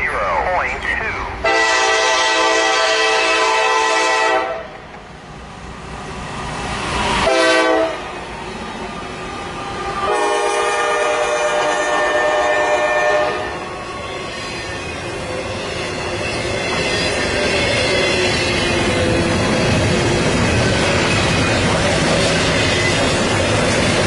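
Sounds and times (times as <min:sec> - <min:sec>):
passing train noise: 0:00.0 - 0:24.0
locomotive air horn blasts: 0:01.4 - 0:04.7, 0:07.2 - 0:08.1, 0:10.0 - 0:13.6.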